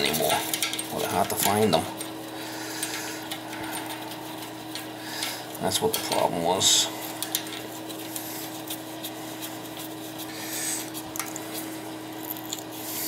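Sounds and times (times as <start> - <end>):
clicks and rubbing of toilet parts: 0.0 - 9.9.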